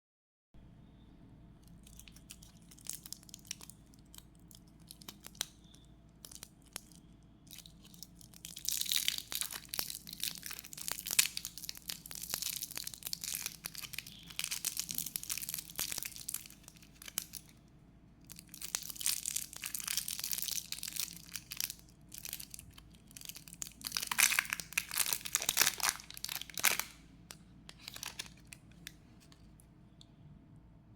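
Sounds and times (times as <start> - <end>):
packaging crinkling: 1.6 - 5.5, 6.2 - 17.5, 18.3 - 29.5.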